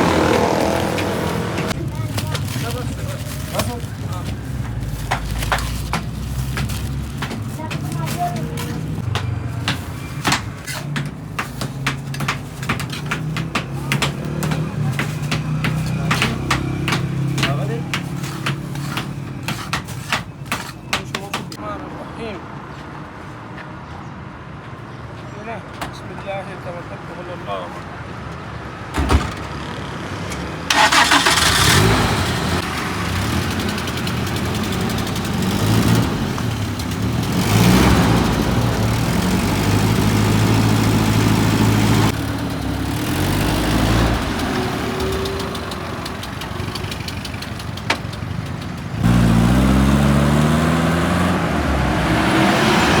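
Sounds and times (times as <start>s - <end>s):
vehicle engine accelerating: 0.0s - 9.1s, 30.7s - 53.0s.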